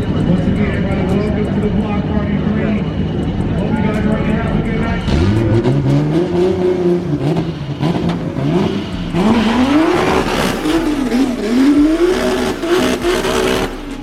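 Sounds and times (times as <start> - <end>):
car engine revving: 0.0 - 14.0
rushing noise: 1.5 - 14.0.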